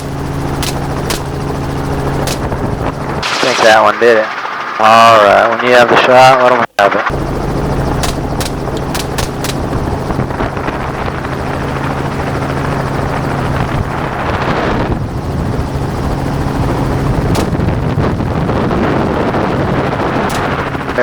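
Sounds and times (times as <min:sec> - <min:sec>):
helicopter droning: 0:00.0 - 0:21.0
gunfire cracks: 0:00.6 - 0:01.4, 0:02.2 - 0:02.5, 0:08.0 - 0:09.8, 0:17.3 - 0:17.8, 0:20.3 - 0:20.8.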